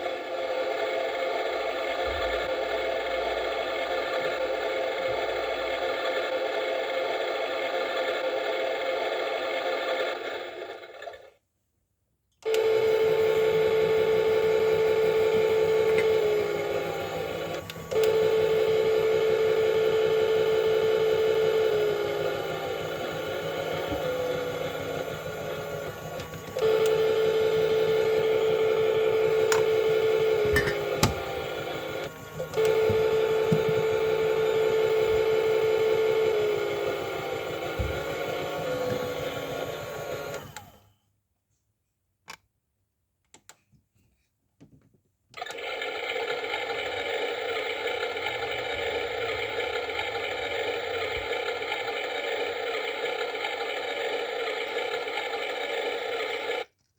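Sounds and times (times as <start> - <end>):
click: 12.3 - 12.7, 17.5 - 18.2, 26.1 - 27.0, 29.4 - 29.7, 32.0 - 33.9, 40.1 - 40.7, 42.2 - 42.5, 43.2 - 43.6, 45.3 - 45.6
small electric motor whining: 12.5 - 40.9, 45.4 - 56.7.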